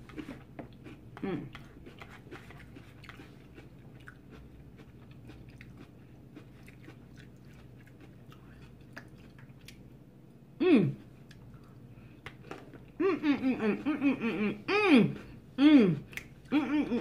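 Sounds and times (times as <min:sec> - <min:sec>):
soft crunching chewing: 0:00.0 - 0:10.0, 0:11.0 - 0:13.0.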